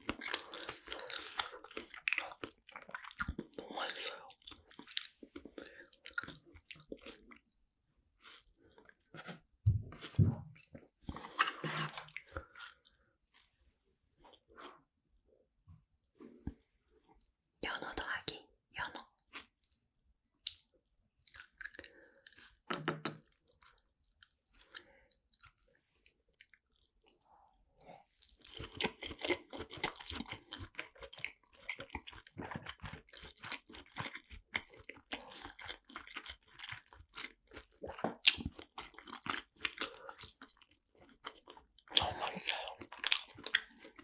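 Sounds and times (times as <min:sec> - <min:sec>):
wet chewing: 0:00.0 - 0:07.6, 0:28.0 - 0:44.0.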